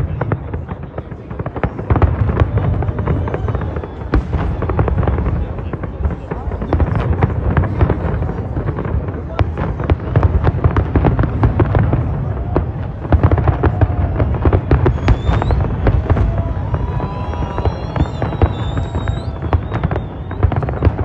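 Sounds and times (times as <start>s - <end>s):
firework bangs and crackles: 0.0s - 21.0s
firework whistles: 2.8s - 5.0s, 13.2s - 21.0s.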